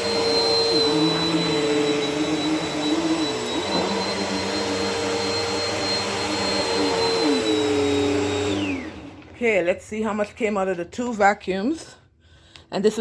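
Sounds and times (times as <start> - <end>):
vacuum cleaner running: 0.0 - 9.8.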